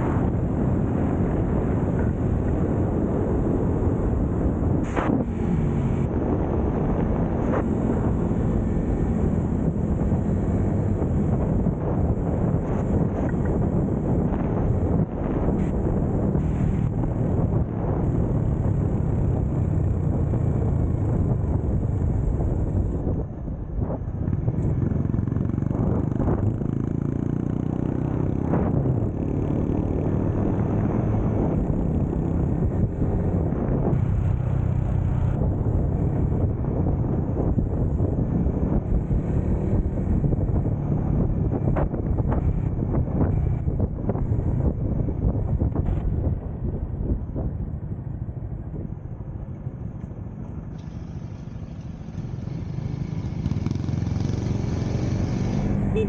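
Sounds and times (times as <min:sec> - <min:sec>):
road rumble: 0:00.0 - 0:56.0
wind: 0:00.0 - 0:56.0
small motorcycle engine running: 0:50.8 - 0:56.0.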